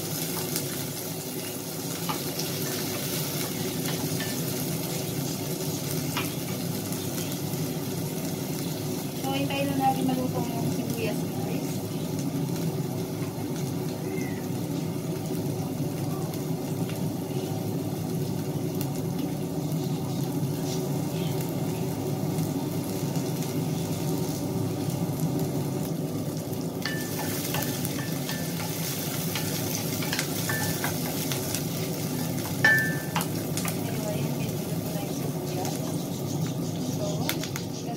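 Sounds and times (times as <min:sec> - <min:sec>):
onions sizzling in a pan: 0:00.0 - 0:37.9
spatula scraping and tapping pan: 0:26.8 - 0:31.5.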